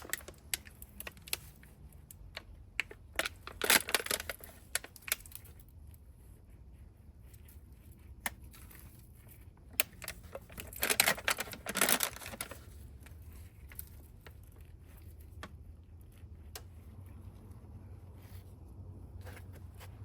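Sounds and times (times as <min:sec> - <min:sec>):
rustling and scraping: 0:00.0 - 0:20.0.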